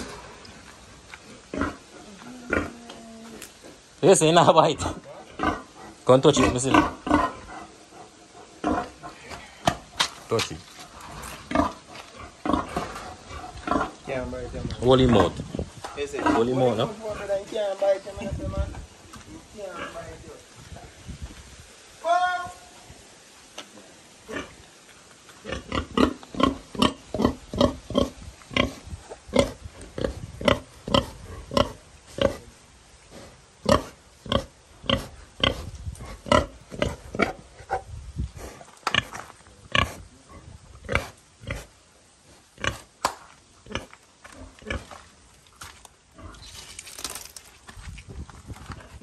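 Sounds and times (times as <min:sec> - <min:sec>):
pig grunting: 0:01.3 - 0:03.1.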